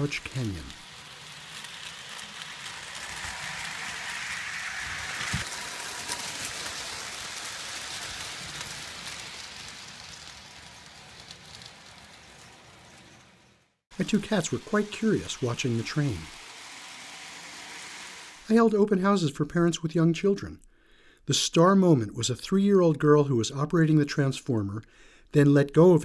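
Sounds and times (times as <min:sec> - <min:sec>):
model train wheels rattling: 0:00.0 - 0:18.5.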